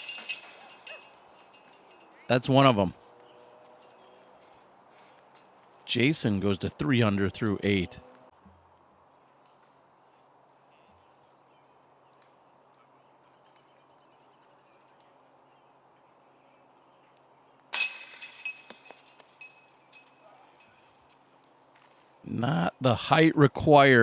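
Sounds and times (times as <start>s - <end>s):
metallic jangling rattle: 0.0s - 2.3s, 17.8s - 21.1s.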